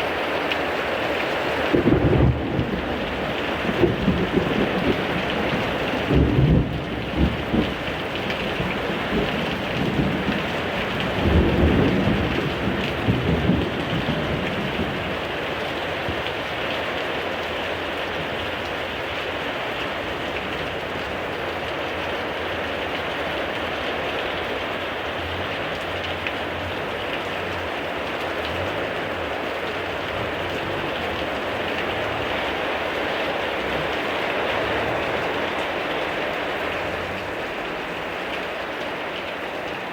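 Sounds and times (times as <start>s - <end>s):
heavy rain: 0.0s - 39.9s
low rumble of thunder: 1.7s - 16.6s.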